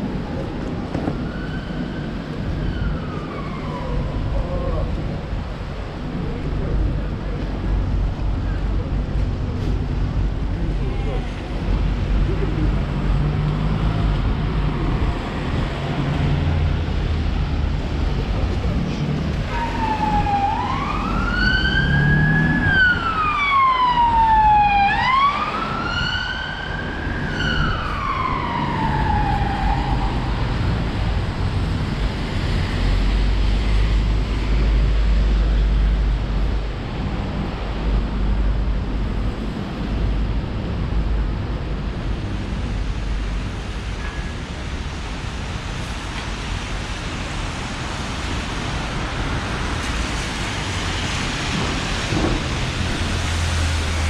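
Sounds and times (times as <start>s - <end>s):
emergency vehicle siren wailing: 0.0s - 5.6s, 19.3s - 33.0s
rain: 0.0s - 54.0s
street noise: 0.0s - 54.0s.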